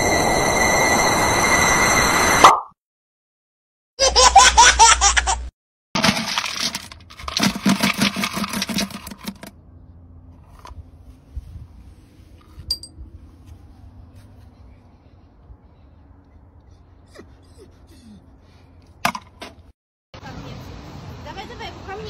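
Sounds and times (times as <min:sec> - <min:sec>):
dry kibble rattling in scoop: 0:06.0 - 0:09.5.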